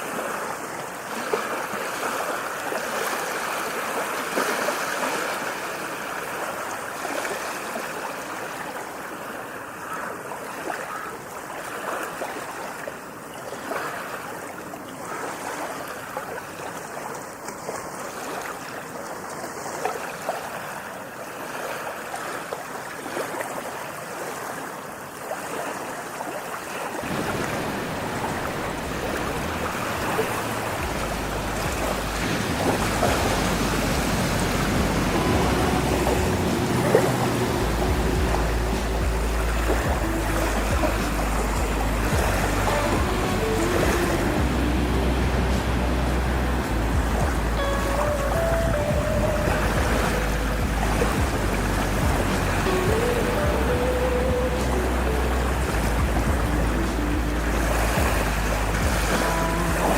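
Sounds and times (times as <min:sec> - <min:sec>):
rushing water: 0:00.0 - 0:59.9
deep low rumble: 0:30.0 - 0:59.9.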